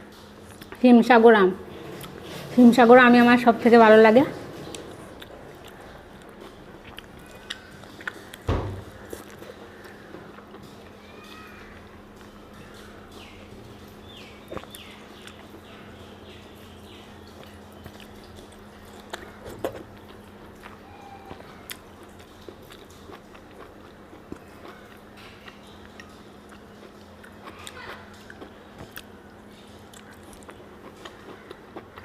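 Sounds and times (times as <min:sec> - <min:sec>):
wet chewing mouth sounds: 0:04.7 - 0:10.9, 0:12.6 - 0:15.8, 0:17.2 - 0:32.0.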